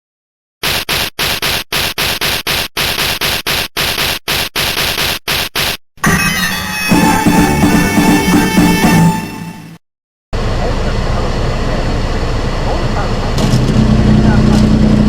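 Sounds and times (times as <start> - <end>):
static hiss bursts: 0.6 - 5.8
music: 6.4 - 9.8.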